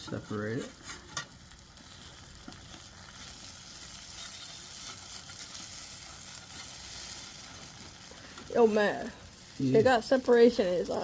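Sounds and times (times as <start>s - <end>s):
pancakes sizzling in a pan: 0.0s - 11.0s.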